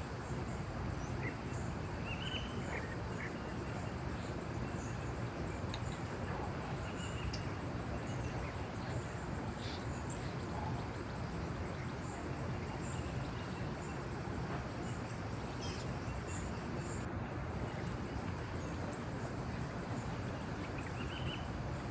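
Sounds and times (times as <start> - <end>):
insect and bird chirps: 0.0 - 21.9
steady background hiss: 0.0 - 21.9.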